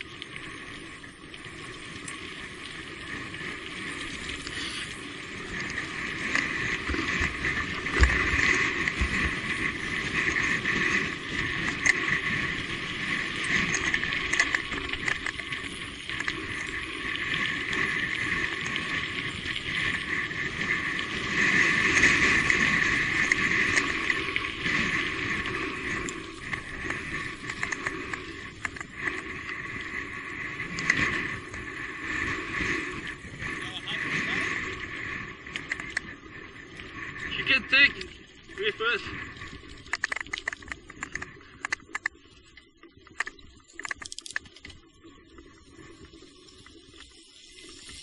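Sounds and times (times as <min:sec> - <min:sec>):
electric bike running noise: 0:00.0 - 0:48.0
bike clicks and rattles: 0:03.8 - 0:29.8, 0:35.6 - 0:36.1, 0:39.8 - 0:44.8.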